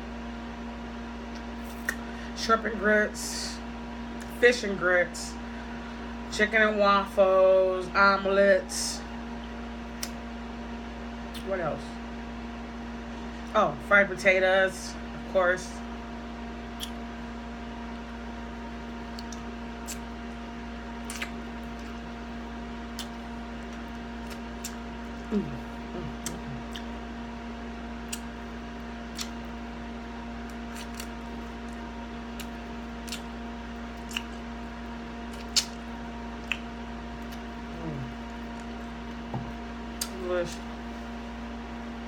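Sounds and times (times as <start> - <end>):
electrical hum: 0.0 - 42.0
wet chewing and mouth smacks: 9.9 - 10.2, 16.7 - 17.0, 18.9 - 20.4, 21.0 - 27.2, 28.0 - 29.7, 30.4 - 40.7
short mouth clicks: 16.8 - 17.0, 19.1 - 20.0, 21.0 - 21.4, 28.1 - 28.3, 29.1 - 29.4, 35.3 - 35.8.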